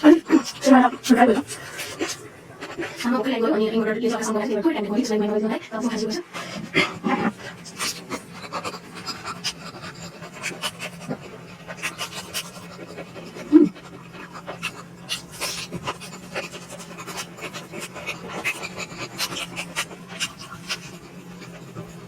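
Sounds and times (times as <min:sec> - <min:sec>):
person chewing food: 0:00.0 - 0:03.0, 0:06.4 - 0:22.0
breathing: 0:06.3 - 0:08.0.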